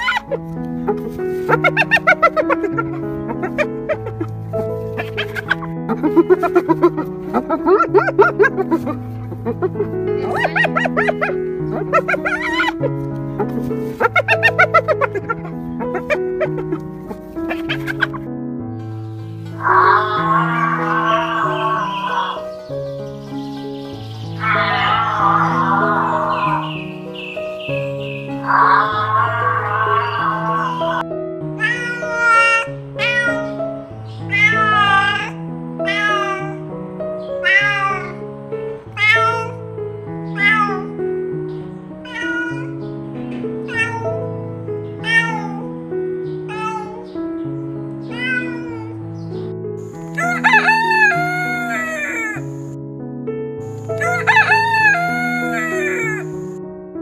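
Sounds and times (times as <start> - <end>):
cat meowing: 0.0 - 0.4, 1.5 - 4.3, 5.0 - 12.9, 14.0 - 18.2, 19.5 - 22.7, 24.3 - 31.0, 31.6 - 38.2, 38.8 - 41.0, 42.0 - 42.8, 43.6 - 47.1, 48.0 - 49.0, 50.1 - 52.6, 54.0 - 56.4
background music: 0.0 - 57.0
rooster crowing: 19.6 - 22.6, 24.1 - 31.0, 50.1 - 52.5, 54.0 - 56.3.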